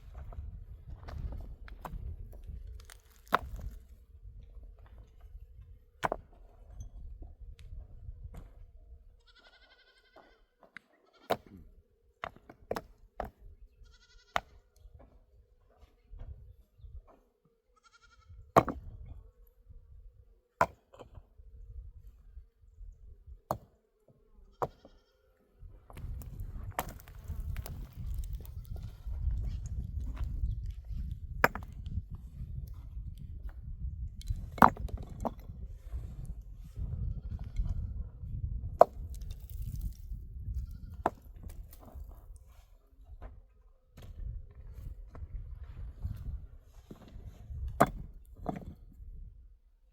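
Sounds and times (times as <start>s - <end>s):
livestock bleating: 9.2s - 11.3s, 13.8s - 14.4s, 17.8s - 18.4s, 24.7s - 25.3s.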